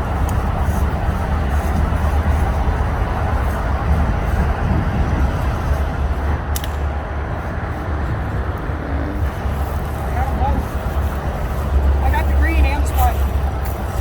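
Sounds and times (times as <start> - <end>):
heavy traffic rumble: 0.0 - 14.0
sharp click: 6.5 - 6.9.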